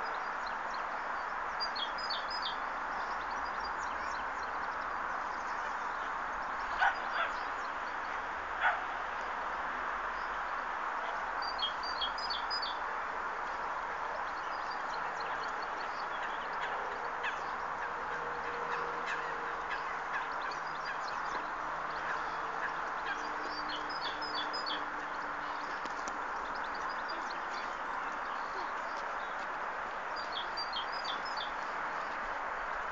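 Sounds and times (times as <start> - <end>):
small birds chirping: 10.1 - 32.9.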